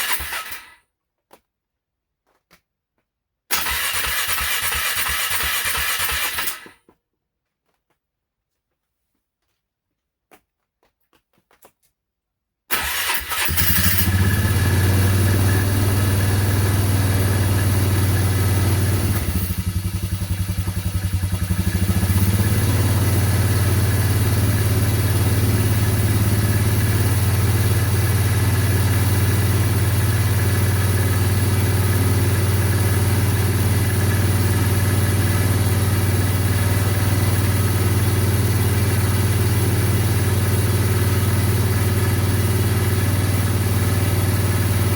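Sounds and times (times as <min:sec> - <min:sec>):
atv engine running: 0:12.7 - 0:44.9.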